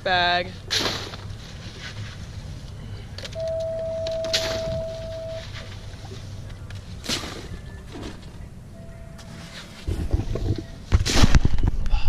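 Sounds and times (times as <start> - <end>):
steady high tone: 3.4 - 5.5.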